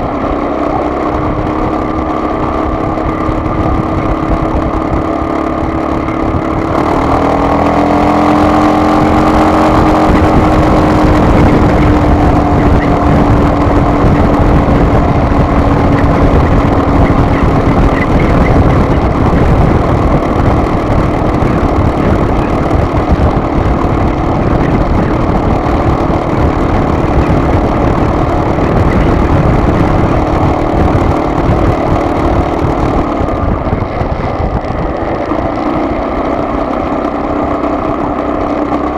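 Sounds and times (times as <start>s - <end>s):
road and wind rumble: 0.0s - 38.9s
vehicle engine: 0.0s - 38.9s.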